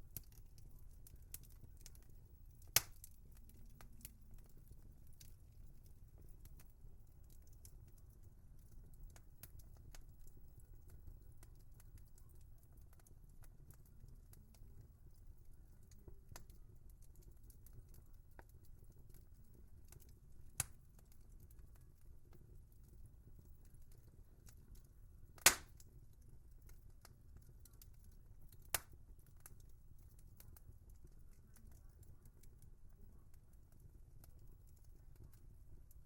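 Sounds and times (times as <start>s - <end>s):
wood fire crackling: 0.0s - 36.0s.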